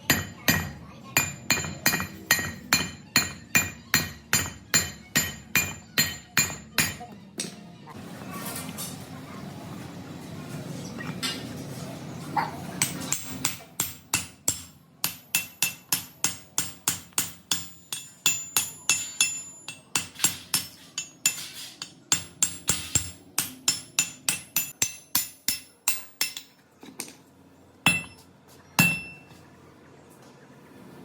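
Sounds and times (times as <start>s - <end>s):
hammer striking metal: 0.0s - 7.6s, 12.8s - 26.6s, 27.9s - 28.2s, 28.8s - 29.3s.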